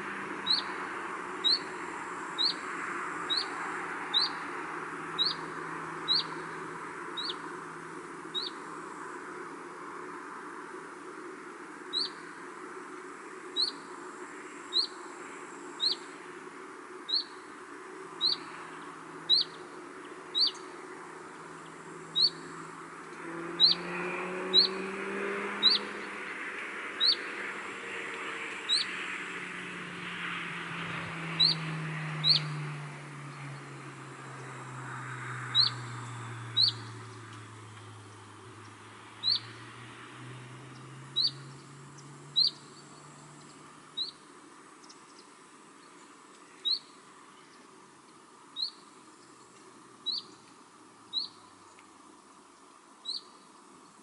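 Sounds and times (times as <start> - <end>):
steady outdoor hiss: 0.0 - 54.0
small bird chirping: 0.4 - 0.8, 1.4 - 1.8, 2.4 - 2.7, 3.3 - 4.5, 5.2 - 6.5, 7.2 - 7.5, 8.3 - 8.6, 11.9 - 12.3, 13.6 - 13.9, 14.7 - 15.0, 15.8 - 16.1, 17.1 - 17.5, 18.2 - 26.1, 27.0 - 27.3, 28.7 - 29.0, 31.3 - 32.6, 35.5 - 39.7, 40.7 - 47.8, 48.6 - 51.9, 53.0 - 54.0
low drone falling in pitch: 22.2 - 42.6.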